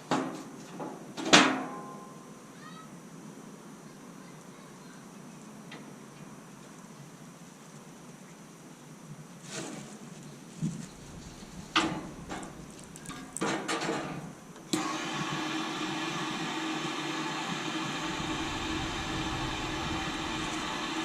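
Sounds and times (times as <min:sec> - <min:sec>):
steady mechanical hum: 0:09.9 - 0:21.0
irregular knocks and clatters: 0:10.6 - 0:14.3.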